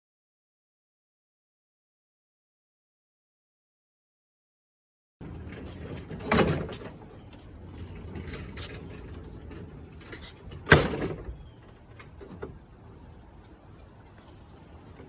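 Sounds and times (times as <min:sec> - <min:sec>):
pallets rolling rumble: 0:05.2 - 0:15.0.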